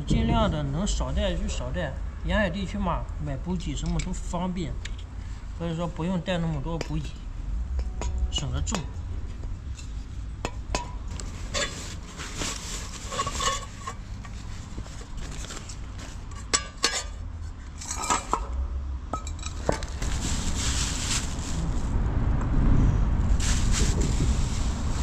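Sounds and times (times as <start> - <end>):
cookware and utensils clinking: 13.1 - 14.0, 16.4 - 17.2.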